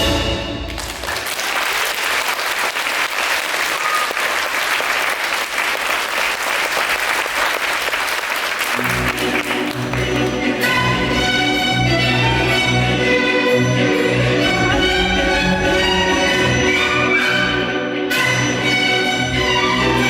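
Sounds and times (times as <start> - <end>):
orchestral music: 0.0 - 1.4, 8.7 - 20.0
audience applauding: 0.6 - 10.6.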